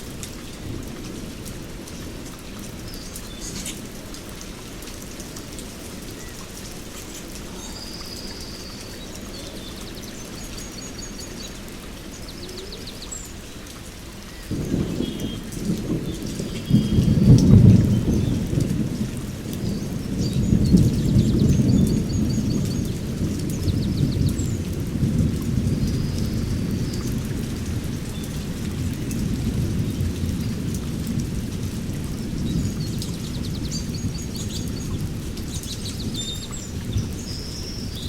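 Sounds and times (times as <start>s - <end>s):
heavy rain falling: 0.0s - 38.0s
thunder rumble: 14.5s - 38.0s.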